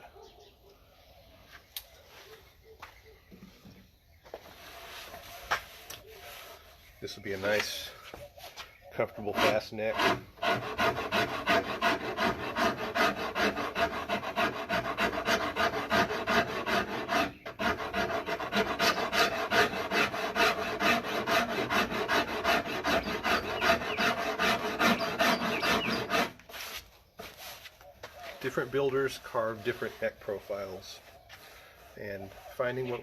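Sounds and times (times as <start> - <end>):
hand rasp carving wood: 9.1 - 27.4, 28.4 - 30.8.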